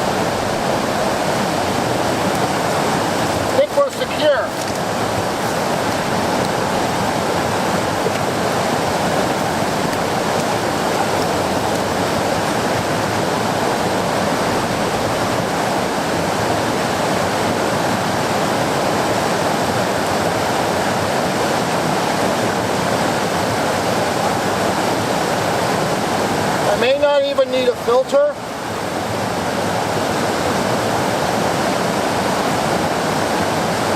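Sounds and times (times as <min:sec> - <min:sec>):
whitewater rapids roaring: 0:00.0 - 0:33.9.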